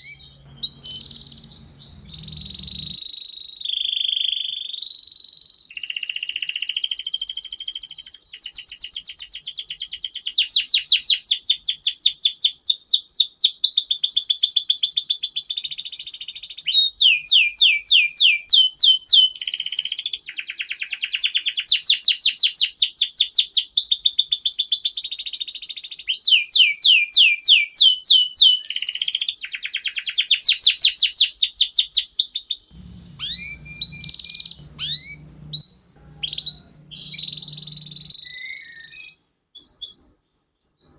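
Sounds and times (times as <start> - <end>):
low hum: 0.0 - 3.0, 32.7 - 38.2
canary singing trills: 0.0 - 40.9.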